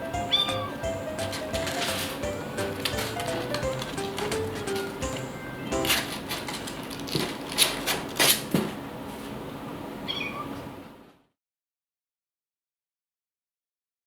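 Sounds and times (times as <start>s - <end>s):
kitten mewing: 0.3s - 0.8s, 10.1s - 10.6s.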